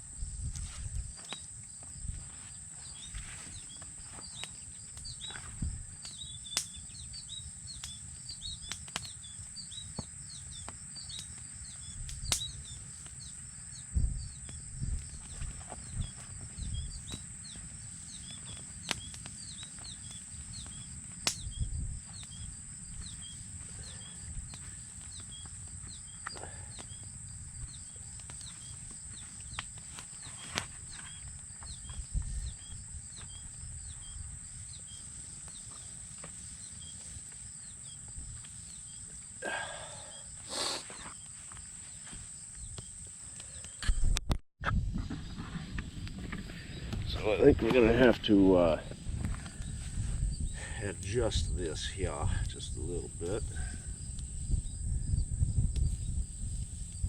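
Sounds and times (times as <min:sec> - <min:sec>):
steady high-pitched hiss: 0:00.0 - 0:44.1, 0:45.0 - 0:57.0
bird chirping: 0:02.8 - 0:29.6.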